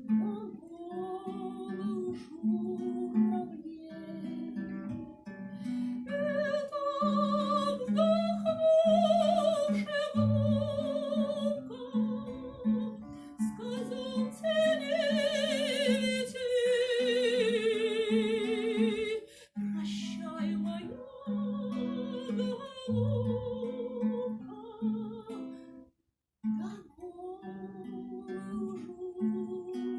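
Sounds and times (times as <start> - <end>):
woman singing with vibrato: 0.0 - 5.0, 6.0 - 25.5, 26.6 - 29.9
plucked guitar: 0.0 - 29.9.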